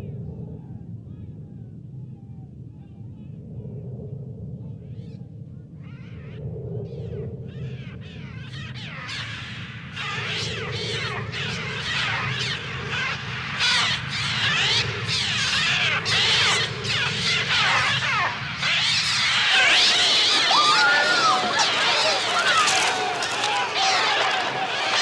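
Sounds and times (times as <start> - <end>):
low rumble: 0.0 - 18.6
gulls screeching: 7.8 - 25.0.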